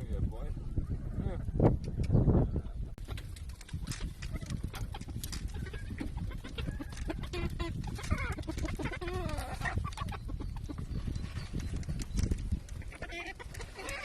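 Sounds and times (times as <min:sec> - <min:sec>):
hens clucking: 0:03.8 - 0:14.0.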